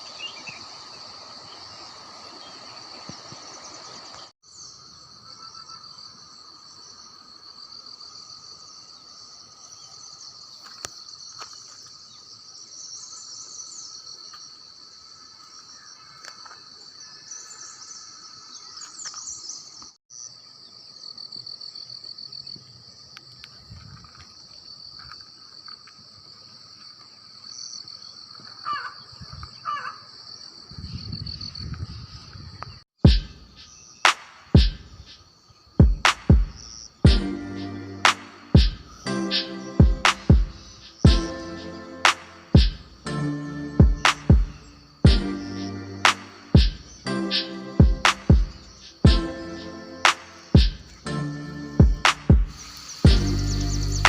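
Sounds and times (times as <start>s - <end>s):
insect chorus shrilling: 0.0s - 20.3s, 33.1s - 43.0s, 44.0s - 51.0s, 52.5s - 54.0s.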